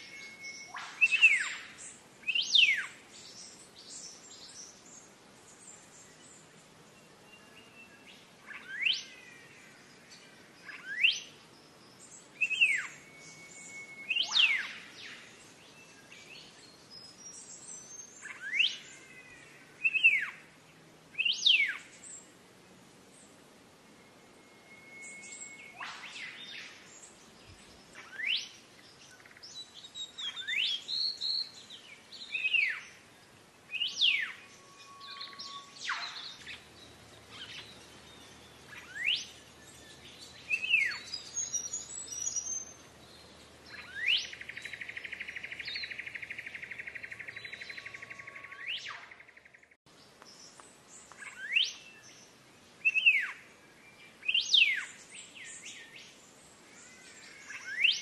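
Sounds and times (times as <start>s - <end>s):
bird whistling sweeping notes: 0.0s - 3.0s, 12.4s - 15.3s, 24.0s - 26.9s, 33.8s - 36.6s.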